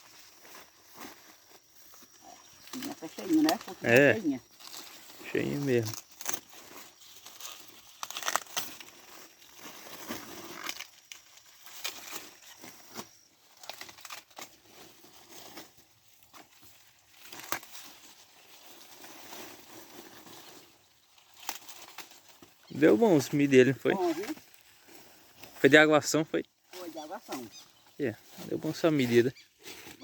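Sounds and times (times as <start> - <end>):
dry corn leaves rustling: 0.0 - 30.0
corn ears snapping off stalks: 7.2 - 9.0, 10.1 - 14.7, 15.5 - 18.1, 21.2 - 22.6.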